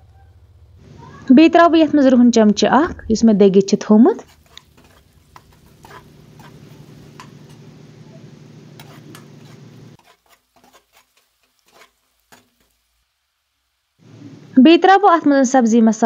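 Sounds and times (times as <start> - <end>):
onions sizzling in oil: 0.8 - 16.0
ladle scraping and tapping: 4.3 - 7.6, 8.7 - 12.6.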